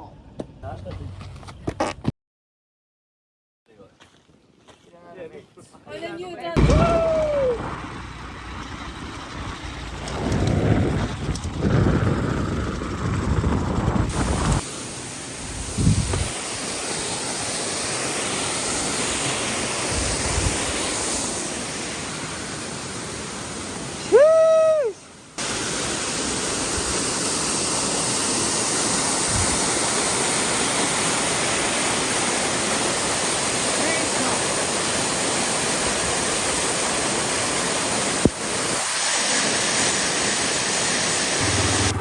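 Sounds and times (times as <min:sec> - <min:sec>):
waterfall rushing: 0:16.3 - 0:24.8, 0:25.4 - 0:42.0.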